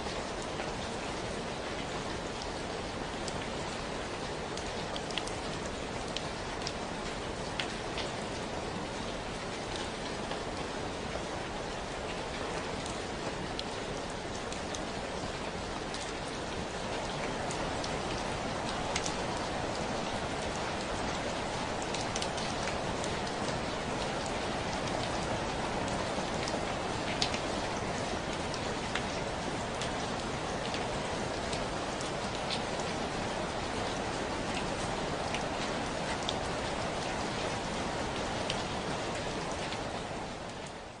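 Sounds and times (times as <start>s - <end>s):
steady rainfall: 0.0s - 41.0s
raindrops ticking: 14.3s - 37.1s.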